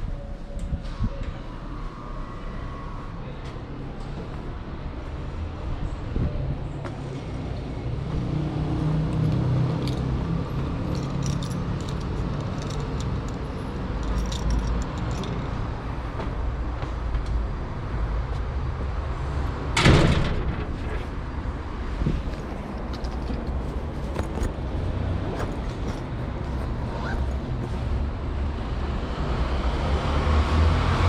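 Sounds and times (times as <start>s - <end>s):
low street rumble: 0.0s - 31.0s
vehicle engine: 1.8s - 31.0s
light metallic rattling: 9.3s - 15.6s.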